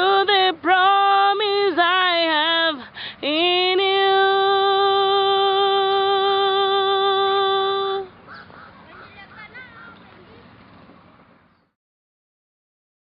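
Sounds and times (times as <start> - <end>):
girl singing: 0.0 - 8.2
singer breathing in: 2.8 - 3.2.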